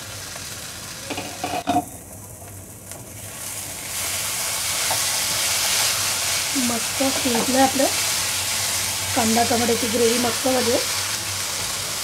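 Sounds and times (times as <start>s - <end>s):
gravy sizzling while stirred: 0.0s - 12.0s.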